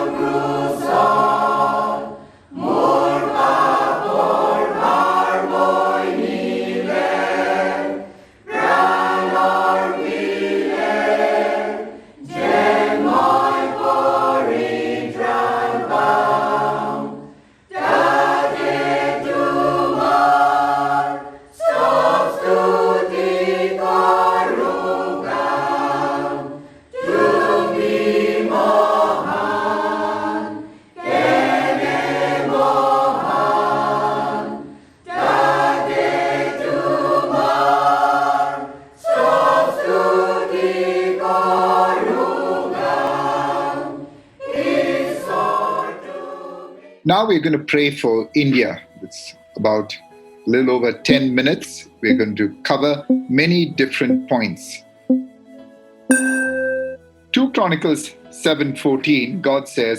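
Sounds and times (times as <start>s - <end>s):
choir singing a cappella: 0.0s - 47.3s, 48.4s - 55.3s.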